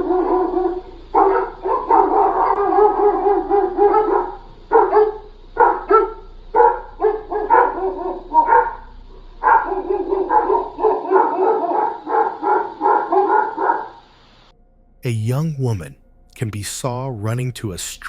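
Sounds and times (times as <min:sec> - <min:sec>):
dog barking quickly: 0:00.0 - 0:14.0
dog howling: 0:00.0 - 0:14.0.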